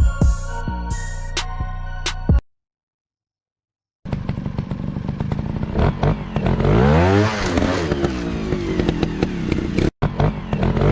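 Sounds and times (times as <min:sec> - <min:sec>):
dirt bike engine running: 0:04.0 - 0:10.9.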